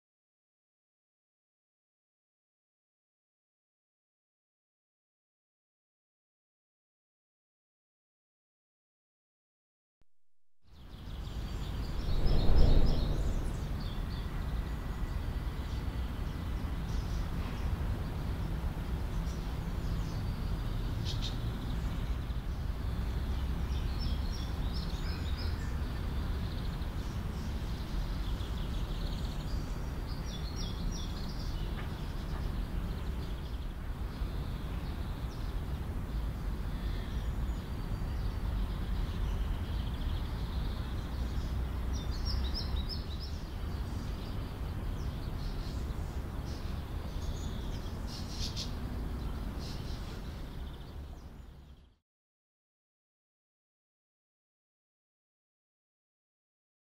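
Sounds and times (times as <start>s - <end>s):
low outdoor rumble: 11.2s - 15.6s.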